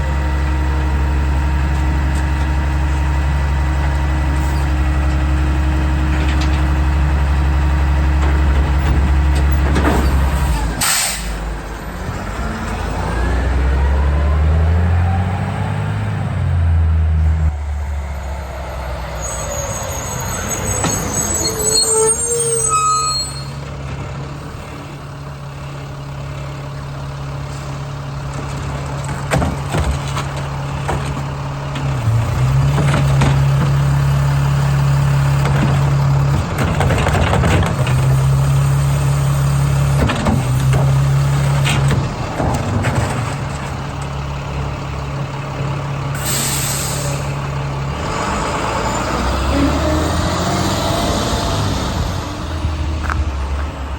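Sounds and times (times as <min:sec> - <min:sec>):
garbage truck diesel engine revving: 0:00.0 - 0:53.9
air brakes hissing: 0:10.4 - 0:11.6, 0:46.1 - 0:47.4
short squeal: 0:18.9 - 0:23.6
metal knocks and clanks: 0:28.3 - 0:34.0, 0:35.4 - 0:38.3.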